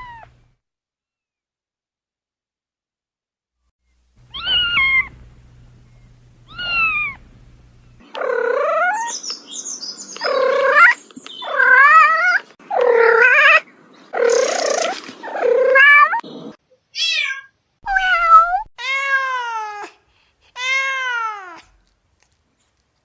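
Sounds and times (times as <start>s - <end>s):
cat meowing: 0.0s - 0.3s, 4.3s - 5.2s, 6.5s - 7.2s, 8.1s - 9.2s, 10.2s - 13.6s, 14.2s - 16.2s, 17.0s - 20.0s, 20.6s - 21.7s.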